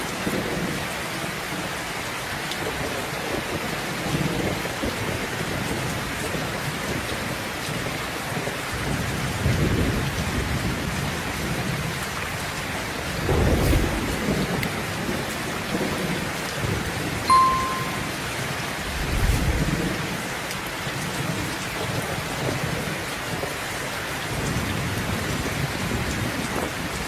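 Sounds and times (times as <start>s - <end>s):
steady rain: 0.0s - 27.0s
rolling thunder rumbles: 12.7s - 16.2s, 18.8s - 20.4s.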